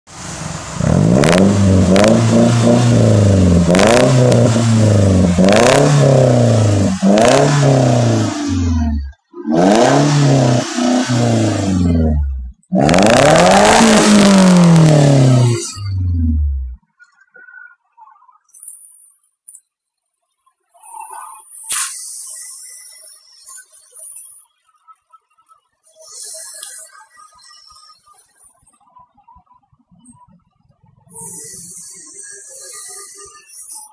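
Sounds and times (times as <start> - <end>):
car engine revving: 0.1 - 16.8
exhaust cracks: 0.5 - 16.8.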